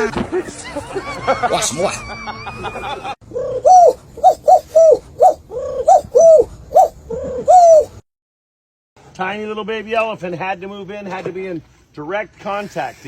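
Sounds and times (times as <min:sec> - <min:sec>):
animal calling: 0:03.3 - 0:08.0.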